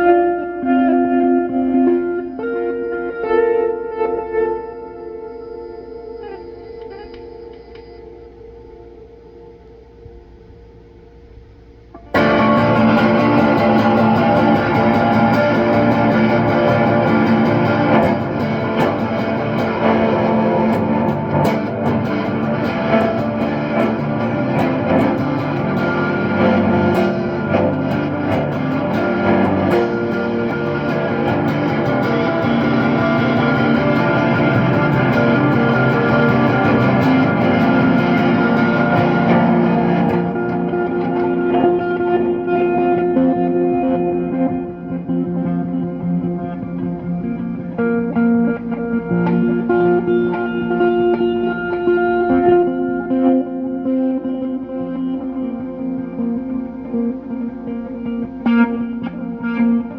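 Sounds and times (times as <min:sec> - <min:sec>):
layered electric guitar chords: 0:00.0 - 0:59.9.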